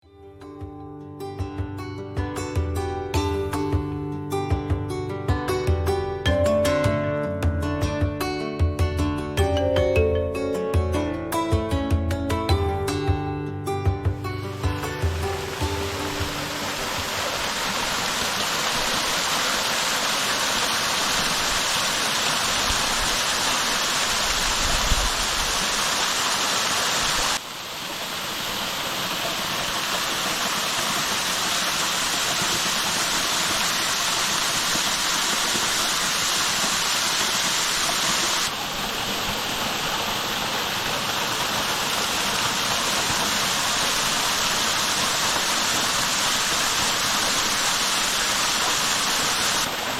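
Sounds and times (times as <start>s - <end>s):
waterfall rushing and splashing: 14.3s - 49.9s.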